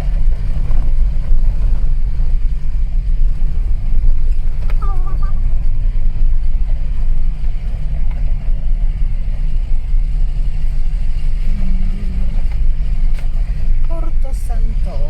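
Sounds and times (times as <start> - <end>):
car driving on dirt road: 0.0 - 15.0.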